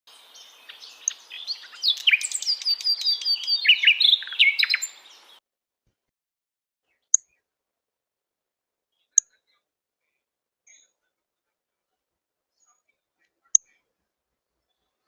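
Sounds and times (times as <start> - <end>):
songbird singing: 0.1 - 5.4.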